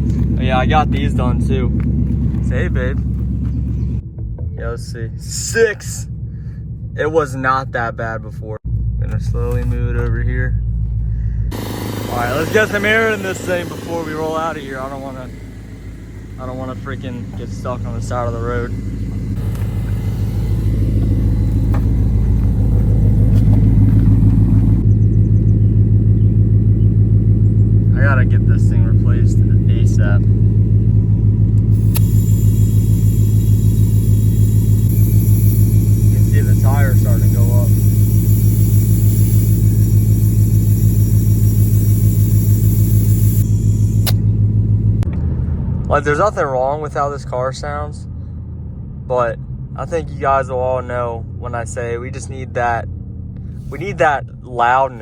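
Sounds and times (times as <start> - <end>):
car engine idling: 0.0 - 55.0
air compressor pulsing hum: 11.1 - 45.1
sharp click: 44.0 - 44.3.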